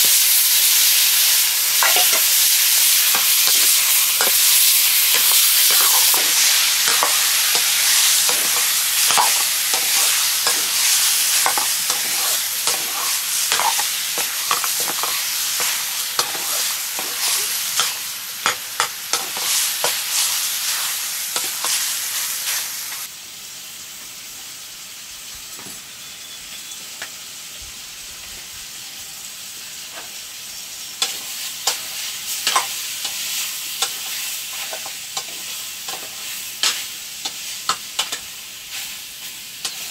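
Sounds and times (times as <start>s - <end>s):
curry sizzling in a pan: 0.0s - 39.9s
spoon scraping a pan: 1.8s - 20.2s.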